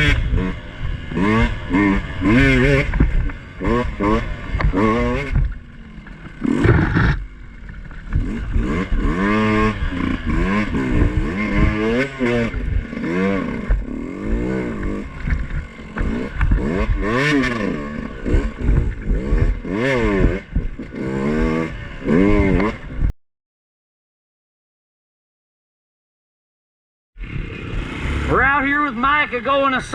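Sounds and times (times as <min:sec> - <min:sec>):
dirt bike engine revving: 0:00.0 - 0:23.1, 0:27.2 - 0:29.9
loud clatter: 0:04.6 - 0:09.0.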